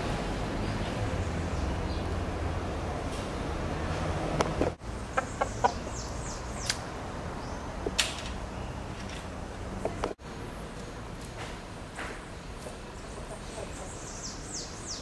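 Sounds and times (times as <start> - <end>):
outdoor background noise: 0.0 - 15.0
birds calling: 4.4 - 11.3, 11.9 - 15.0
sharp clicks: 6.6 - 6.9.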